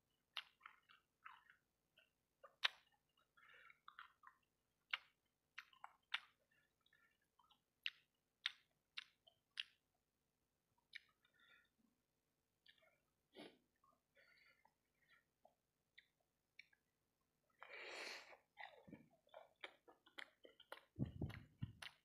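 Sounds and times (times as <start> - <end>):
close chewing mouth sounds: 0.0 - 9.9, 10.7 - 11.8, 12.6 - 22.0
lip smacks and clicks: 0.3 - 9.8, 10.8 - 11.4, 15.9 - 16.9, 18.3 - 22.0.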